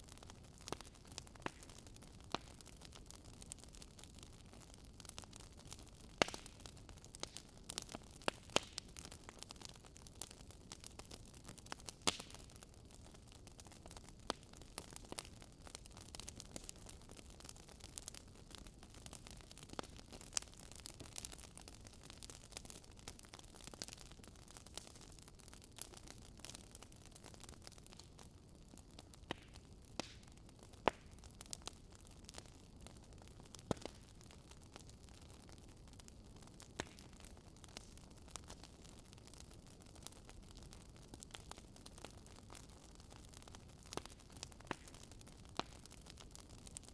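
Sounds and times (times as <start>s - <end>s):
campfire crackling: 0.0s - 46.9s
fire popping and snapping: 0.0s - 46.9s.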